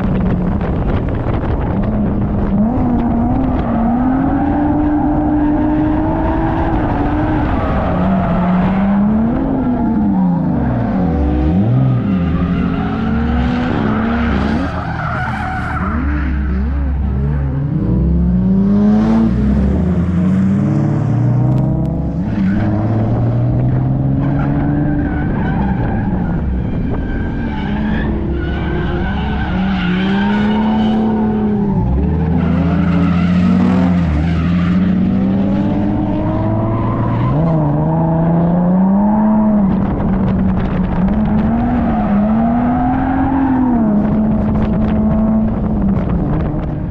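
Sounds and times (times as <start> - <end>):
tyres squealing and skidding: 3.6 - 17.3, 24.0 - 38.1, 41.2 - 43.8.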